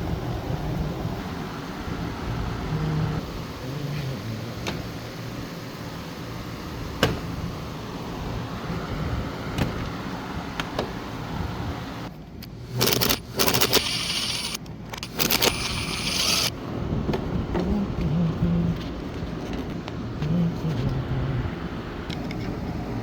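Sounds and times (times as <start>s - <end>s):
loud rattling and scraping: 12.6s - 16.5s.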